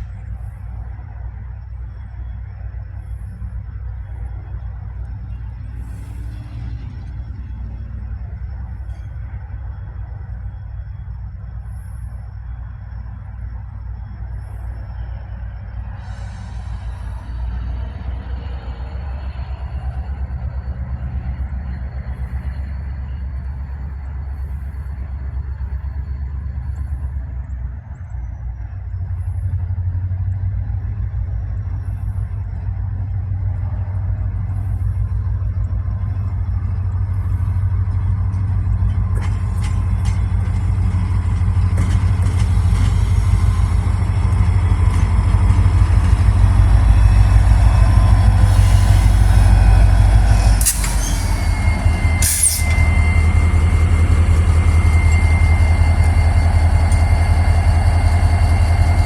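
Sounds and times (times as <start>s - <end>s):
diesel locomotive engine drone: 0.0s - 59.0s
high steady squeal: 30.7s - 59.0s
sharp bursts of air hiss: 50.6s - 51.6s, 52.2s - 52.8s.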